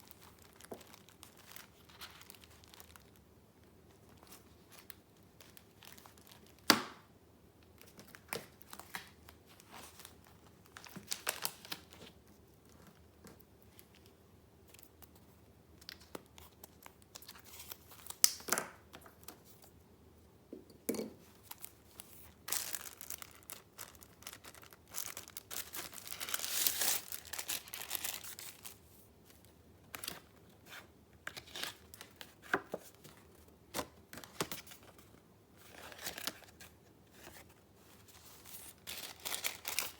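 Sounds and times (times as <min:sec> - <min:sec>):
paper rustling and crinkling: 0:21.4 - 0:39.9.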